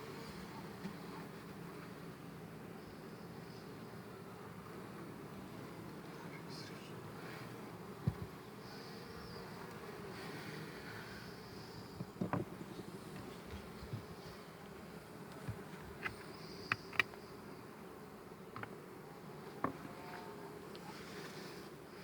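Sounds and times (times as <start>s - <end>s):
honeybees humming: 0.0s - 22.0s.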